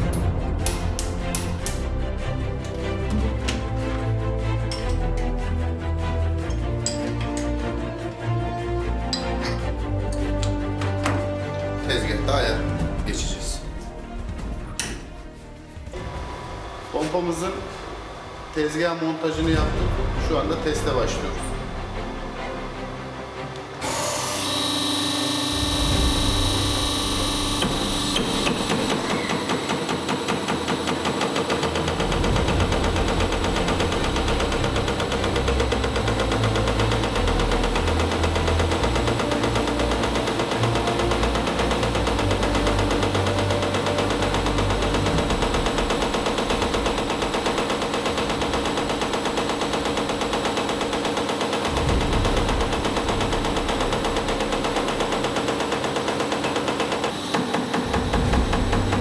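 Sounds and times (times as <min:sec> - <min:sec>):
test bench drive hum: 0:23.6 - 0:29.3
injector rapid clicking: 0:23.9 - 0:59.0.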